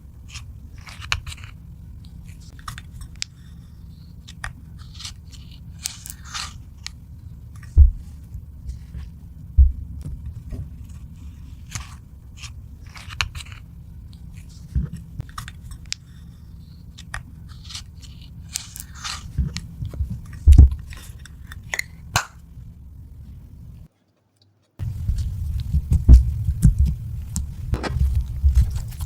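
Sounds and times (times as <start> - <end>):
steady low hum: 0.0 - 23.9, 24.8 - 29.0
heavy low thumps: 7.8 - 8.1, 9.6 - 10.0, 20.0 - 20.8, 24.8 - 29.0.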